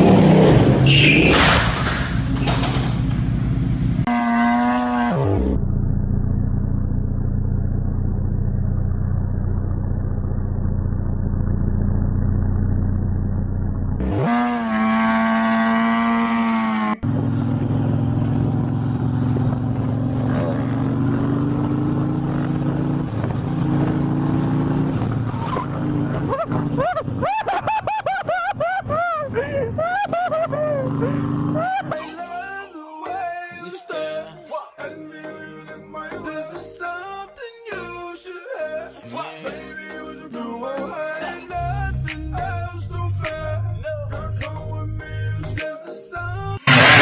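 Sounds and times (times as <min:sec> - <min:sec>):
engine revving up: 0:00.0 - 0:06.5, 0:13.9 - 0:27.2, 0:30.5 - 0:31.9, 0:46.6 - 0:47.0
vehicle engine droning: 0:00.0 - 0:31.9, 0:46.4 - 0:47.0.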